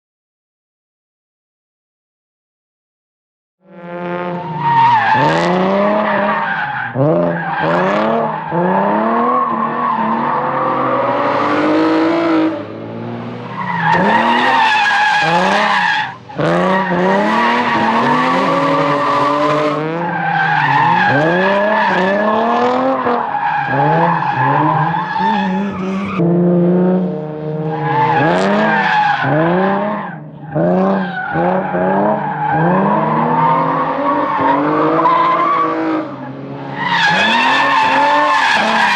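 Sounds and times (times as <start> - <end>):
car engine revving: 3.7 - 38.9
tyres squealing: 23.3 - 26.2, 36.7 - 38.9.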